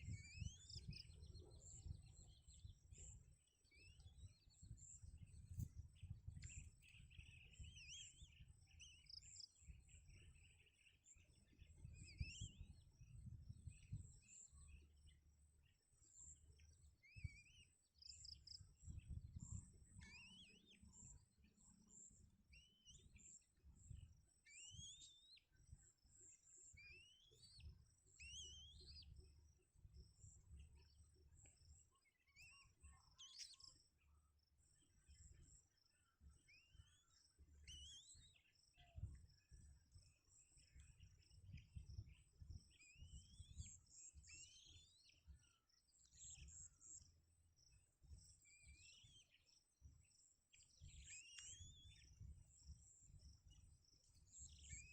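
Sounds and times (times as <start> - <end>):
faint bird chirps: 0.0 - 54.9.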